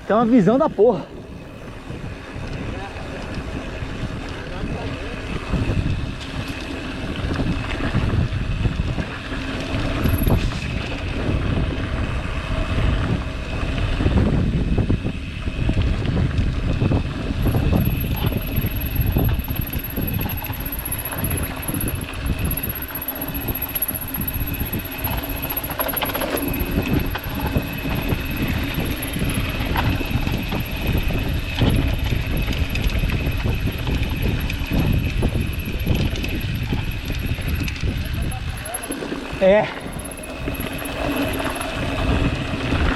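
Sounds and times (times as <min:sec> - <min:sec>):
bike rattling on dirt trail: 0:00.0 - 0:42.9
wind buffeting microphone: 0:00.0 - 0:42.9.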